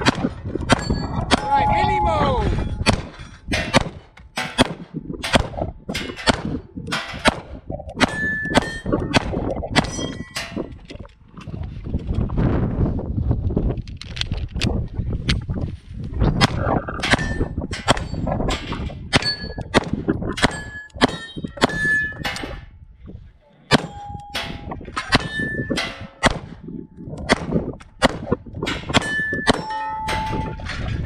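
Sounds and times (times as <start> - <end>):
metallic clangs of steel targets: 0.0 - 10.8, 17.0 - 22.7, 23.7 - 26.6, 27.3 - 31.0.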